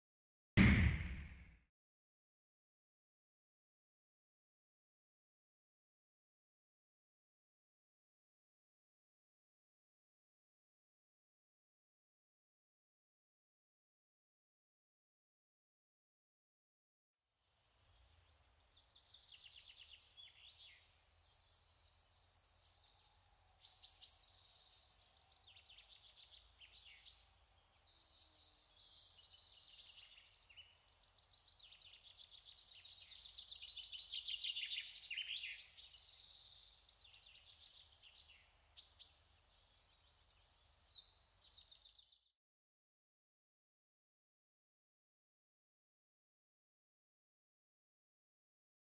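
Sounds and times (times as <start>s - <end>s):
songbirds chirping and trilling: 17.3s - 42.3s.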